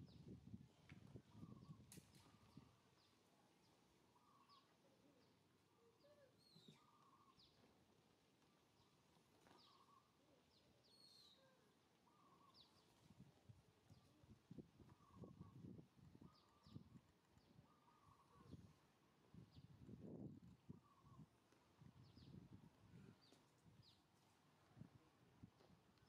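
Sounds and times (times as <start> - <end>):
lower bird call: 6.0 - 7.6, 10.9 - 12.9.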